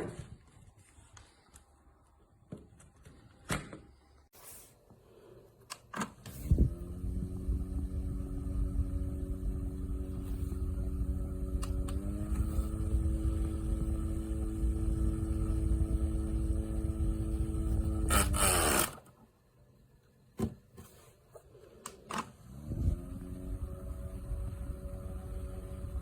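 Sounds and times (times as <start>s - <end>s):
small fan motor humming: 6.4s - 19.0s, 22.4s - 26.0s.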